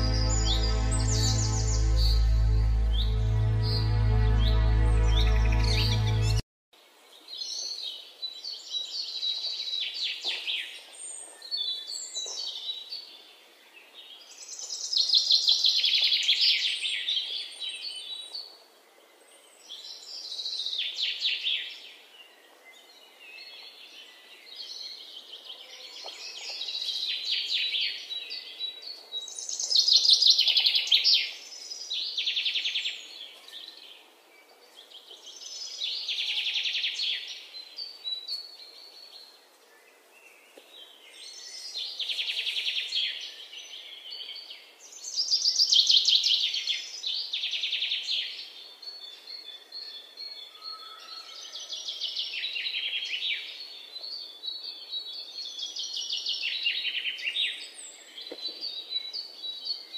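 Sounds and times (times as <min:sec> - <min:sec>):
bird singing high trills: 0:00.0 - 0:06.4.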